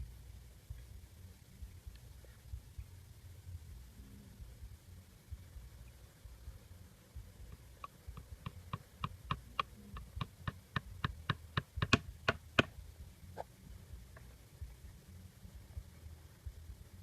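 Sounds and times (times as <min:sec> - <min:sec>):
sharp taps: 0:07.8 - 0:12.8.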